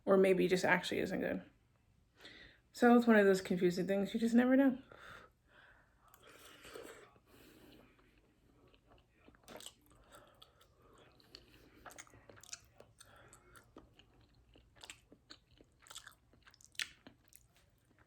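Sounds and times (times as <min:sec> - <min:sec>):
faint chewing of food: 0:04.9 - 0:18.0.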